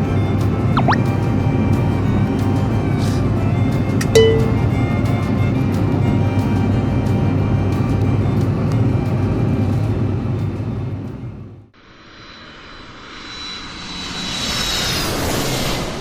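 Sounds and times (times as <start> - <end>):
turboprop engine drone: 0.0 - 4.0, 4.7 - 11.6
aircraft whoosh with high whine: 11.9 - 16.0.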